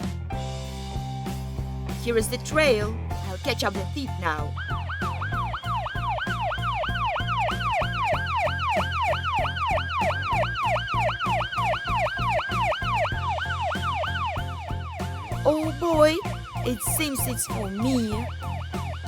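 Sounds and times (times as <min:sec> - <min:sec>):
police siren yelping: 0:04.3 - 0:16.1.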